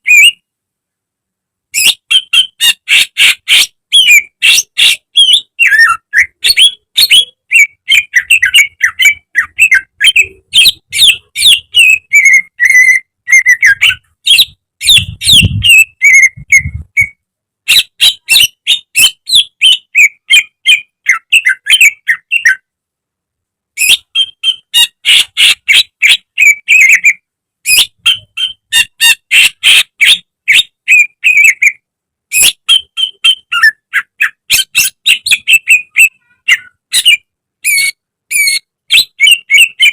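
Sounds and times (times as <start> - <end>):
bird singing whistled chattering notes: 1.8 - 22.6, 23.8 - 39.9.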